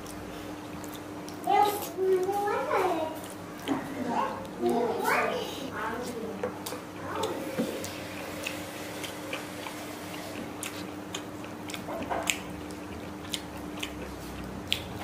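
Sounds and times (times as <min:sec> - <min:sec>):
person chewing food: 0:00.0 - 0:02.5, 0:03.2 - 0:15.0
wet mouth clicks: 0:06.6 - 0:15.0.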